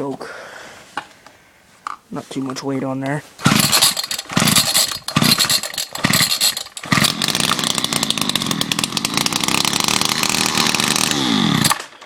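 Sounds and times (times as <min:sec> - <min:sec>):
person talking: 0:02.1 - 0:03.3
starter cord pull: 0:03.4 - 0:12.0
string trimmer engine running: 0:03.4 - 0:12.0.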